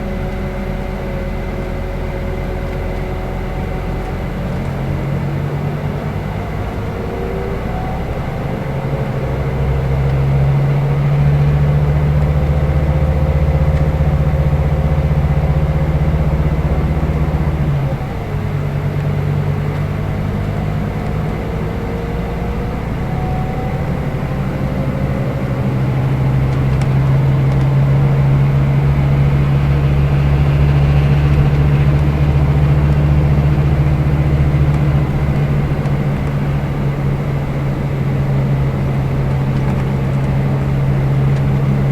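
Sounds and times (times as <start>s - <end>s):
bus diesel engine droning: 0.0s - 41.9s.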